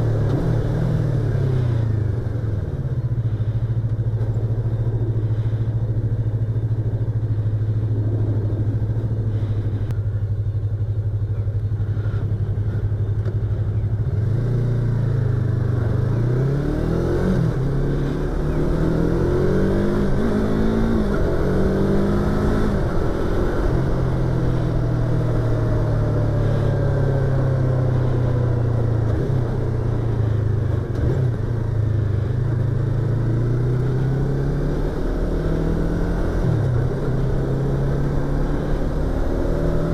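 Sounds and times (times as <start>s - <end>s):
motorcycle engine revving: 11.8s - 39.9s.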